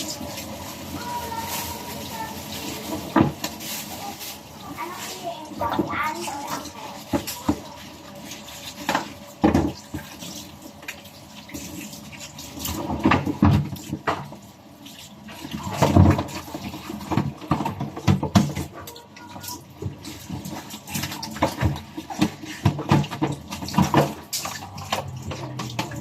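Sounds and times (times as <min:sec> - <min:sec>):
water splashing: 0:00.0 - 0:26.0.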